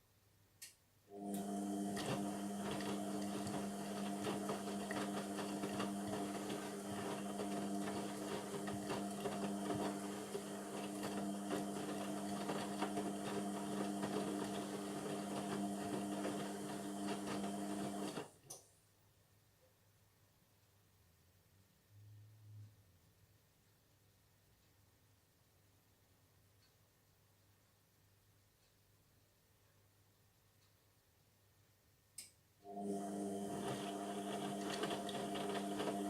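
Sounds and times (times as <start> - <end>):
washing machine motor humming: 1.1 - 18.4, 32.6 - 36.0.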